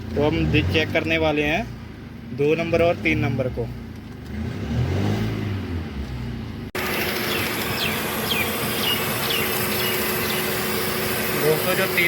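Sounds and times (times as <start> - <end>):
car engine idling unevenly: 6.6 - 12.0.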